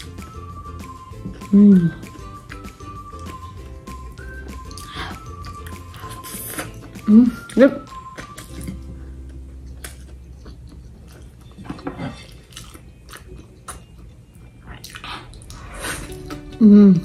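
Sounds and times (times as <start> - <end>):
person chewing food: 0.0 - 16.6
person humming: 1.4 - 2.2, 16.5 - 17.0
wet mouth clicks: 4.6 - 8.8.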